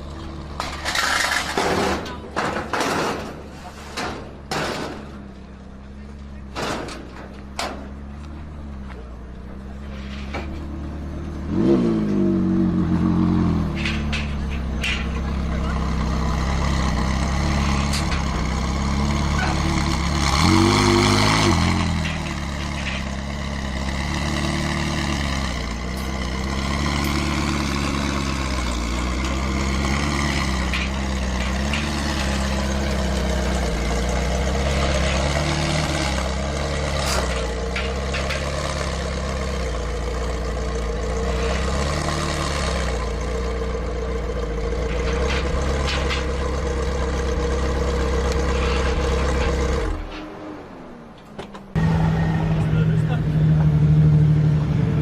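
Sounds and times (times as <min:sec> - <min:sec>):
engine revving: 0:07.6 - 0:50.7, 0:51.7 - 0:55.0
car engine idling: 0:12.5 - 0:55.0.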